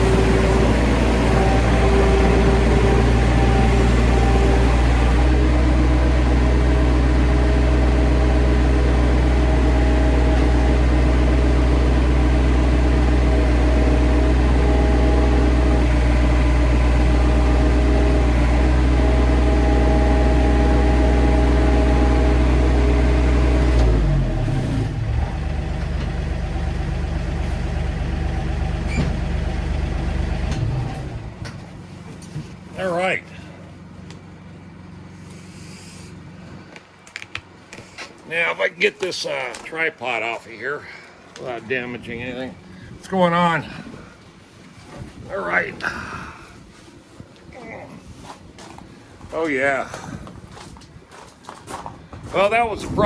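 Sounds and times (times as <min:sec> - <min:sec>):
excavator engine running: 0:00.0 - 0:53.0.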